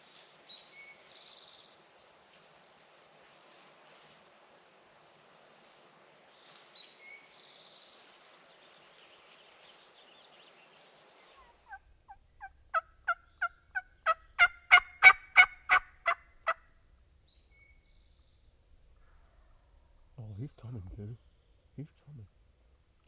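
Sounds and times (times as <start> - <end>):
turkey yelping: 11.7 - 16.6.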